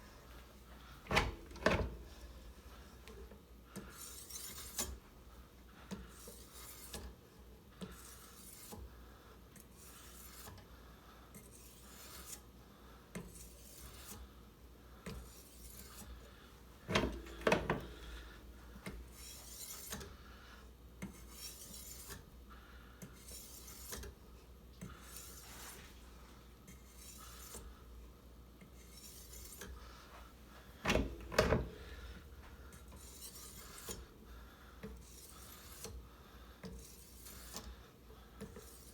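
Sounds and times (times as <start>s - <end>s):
clattering knocks: 16.9s - 18.4s, 30.9s - 32.1s.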